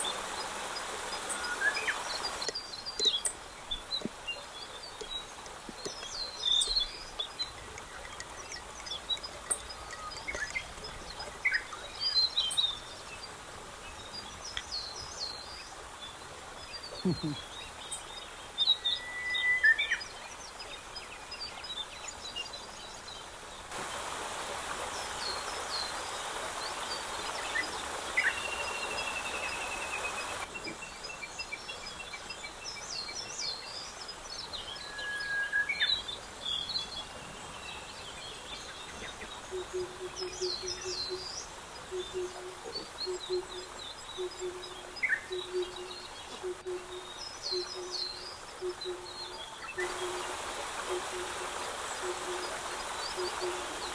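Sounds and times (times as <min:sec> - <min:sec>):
steady hiss: 0:00.0 - 0:18.8, 0:22.6 - 0:53.9
birds chirping and whistling: 0:01.4 - 0:12.9.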